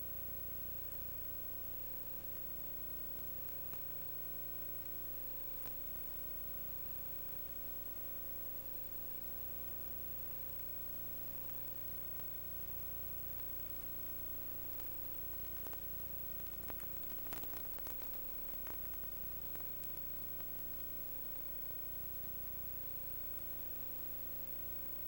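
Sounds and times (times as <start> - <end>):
steady hum and hiss: 0.0 - 25.0
faint clicks: 1.9 - 6.4, 7.0 - 21.2.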